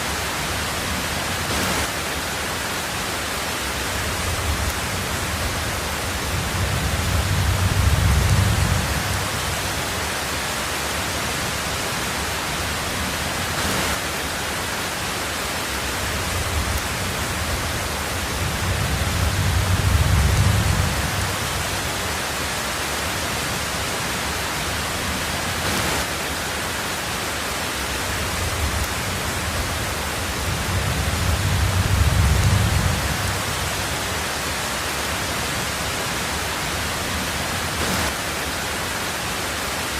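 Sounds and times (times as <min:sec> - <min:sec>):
heavy rain on a tin roof: 0:00.0 - 0:39.9
low thunder rumbles: 0:03.9 - 0:10.0, 0:16.0 - 0:22.1, 0:28.2 - 0:34.2.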